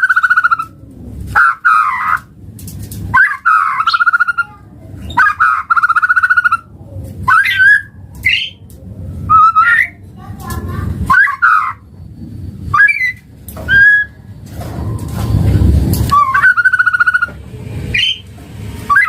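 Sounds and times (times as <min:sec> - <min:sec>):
bird singing rattling trills: 0:03.2 - 0:06.7, 0:07.3 - 0:08.7, 0:16.1 - 0:18.3.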